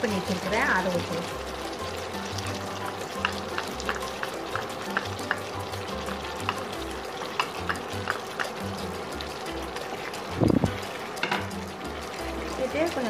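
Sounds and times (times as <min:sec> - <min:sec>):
chicken sizzling in a wok: 0:00.0 - 0:13.0.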